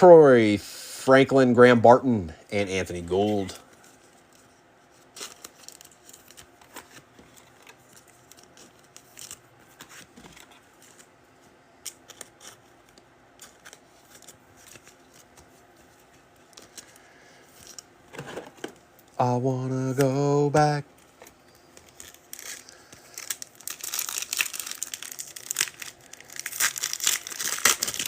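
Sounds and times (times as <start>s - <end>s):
foil wrappers rustling: 21.5s - 28.0s.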